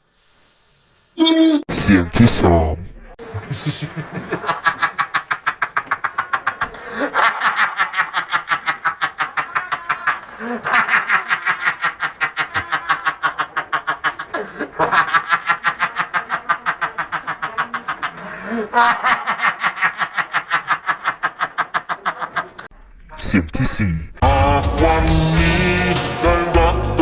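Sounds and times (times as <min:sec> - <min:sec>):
rapid chattering pulses: 0:07.8 - 0:22.7.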